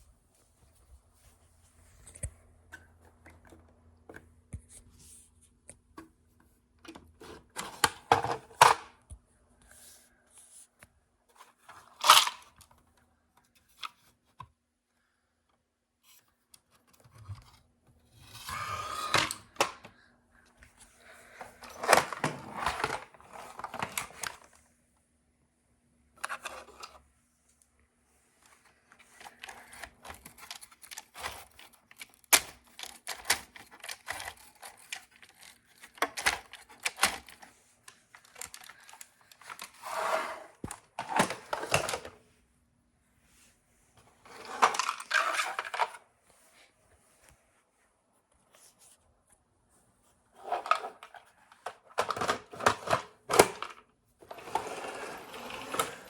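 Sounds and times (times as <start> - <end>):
plastic bricks clattering: 44.3 - 46.0.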